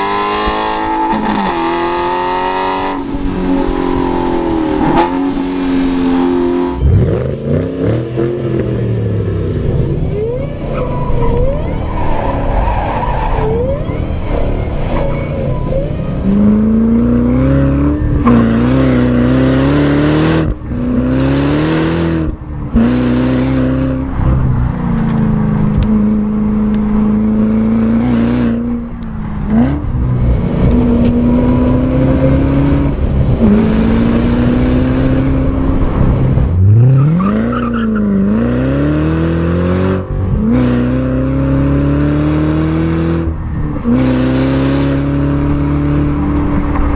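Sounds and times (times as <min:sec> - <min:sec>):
car engine revving: 0:00.0 - 0:46.9.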